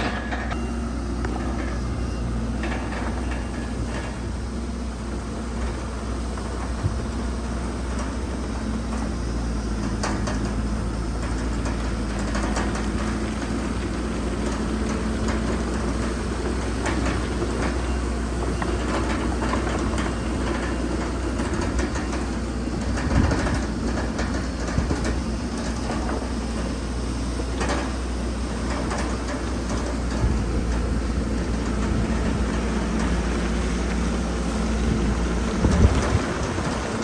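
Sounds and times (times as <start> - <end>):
metal clanks and knocks: 0.0 - 4.4, 27.6 - 34.0
bulldozer diesel engine rumbling: 0.0 - 37.0.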